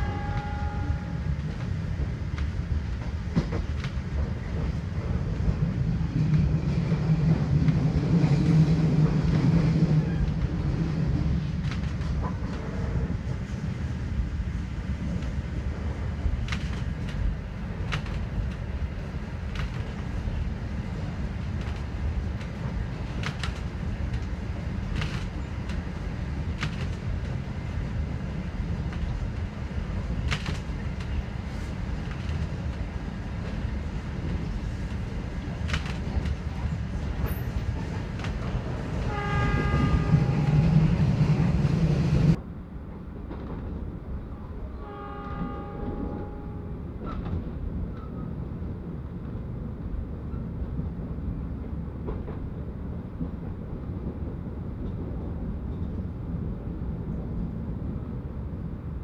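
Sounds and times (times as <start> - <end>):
train horn: 0.0 - 1.4, 39.0 - 40.8, 44.6 - 46.9
train rumbling: 0.0 - 59.0.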